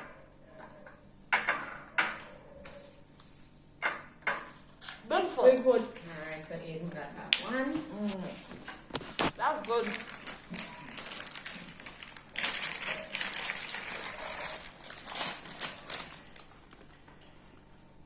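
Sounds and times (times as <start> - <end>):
snack packaging rustling: 8.5 - 17.4.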